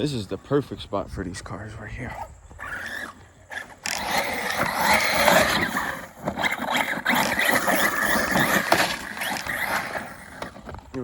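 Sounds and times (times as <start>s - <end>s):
tyres churning dirt: 0.0s - 11.0s
electric motor whine: 2.5s - 10.8s.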